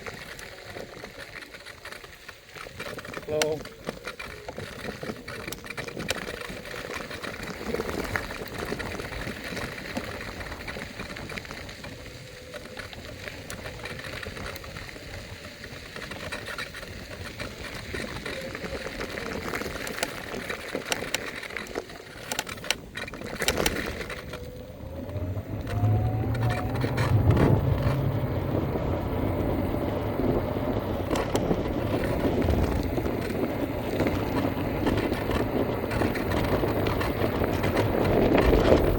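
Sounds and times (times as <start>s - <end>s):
electric scooter motor whine: 0.0s - 38.9s
wind: 0.0s - 38.9s
road rumble: 17.0s - 38.9s.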